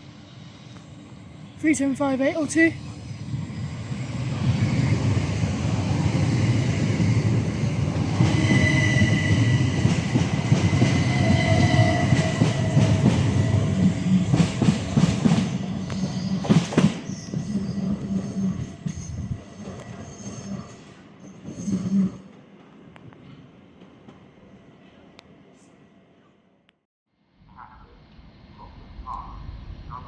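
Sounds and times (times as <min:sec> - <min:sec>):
electric train rumble: 0:00.0 - 0:24.5
high-pitched wheel squeal: 0:08.0 - 0:13.8.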